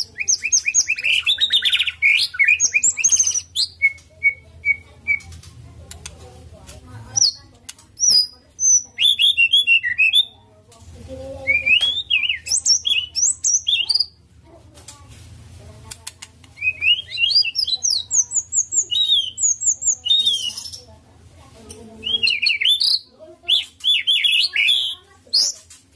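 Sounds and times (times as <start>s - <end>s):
bird chattering phrases: 0.0s - 6.1s, 7.1s - 10.4s, 11.4s - 14.2s, 16.0s - 20.9s, 22.0s - 25.7s.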